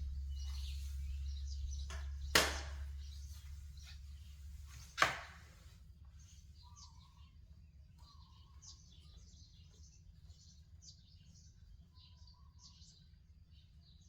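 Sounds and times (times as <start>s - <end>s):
sharp knock: 0.0s - 3.4s, 5.0s - 5.4s
small birds chirping: 0.0s - 14.0s.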